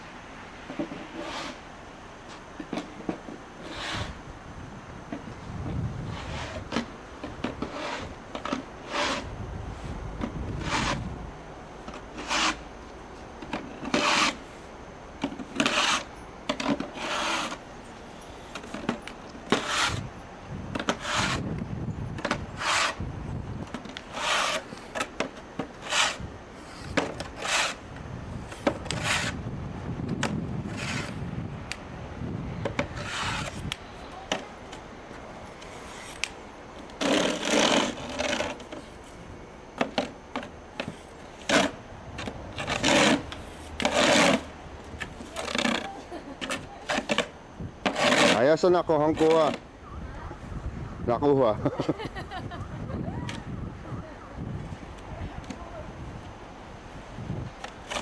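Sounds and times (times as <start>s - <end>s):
rough scraping strokes: 0.8s - 1.6s, 3.6s - 4.2s, 6.0s - 11.2s, 11.8s - 12.7s, 13.5s - 20.1s, 20.8s - 21.5s, 22.2s - 23.1s, 23.8s - 25.1s, 25.7s - 27.8s, 28.4s - 29.4s, 30.6s - 31.3s, 32.7s - 33.8s, 35.6s - 39.3s, 40.8s - 49.6s.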